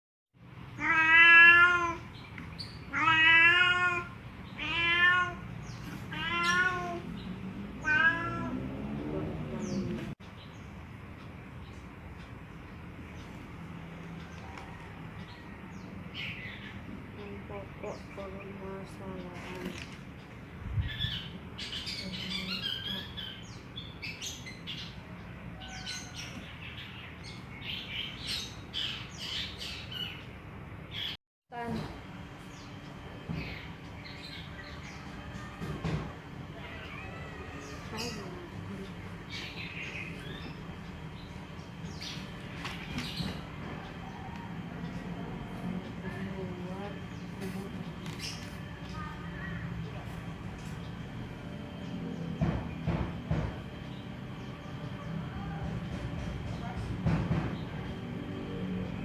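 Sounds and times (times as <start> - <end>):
small birds chirping: 0.5 - 59.0
cat meowing: 0.8 - 2.2, 2.9 - 7.2, 7.8 - 8.9, 36.5 - 38.6.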